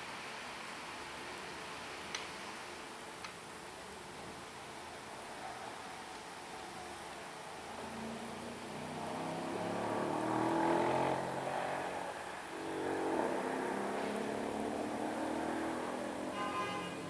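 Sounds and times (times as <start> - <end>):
car engine revving: 7.8 - 16.4.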